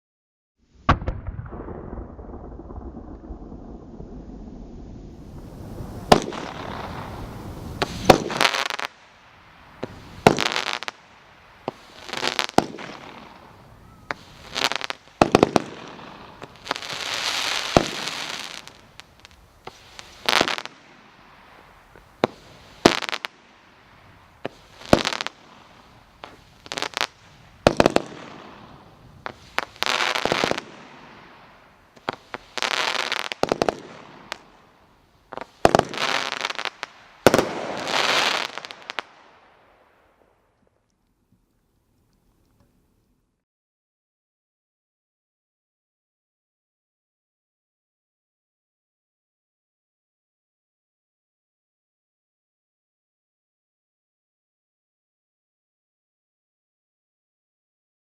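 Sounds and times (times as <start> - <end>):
fireworks cake bangs: 5.3 - 8.8.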